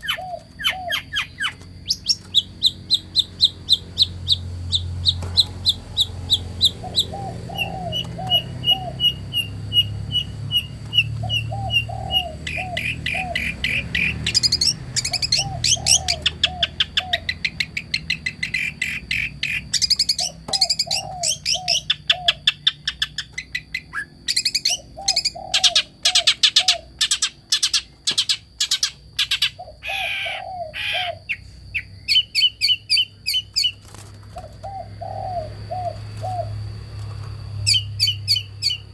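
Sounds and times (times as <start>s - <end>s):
dove cooing: 0.0s - 17.6s, 20.2s - 22.6s, 24.6s - 27.2s, 29.4s - 31.3s, 33.6s - 38.9s
songbirds chirping and trilling: 0.0s - 38.9s.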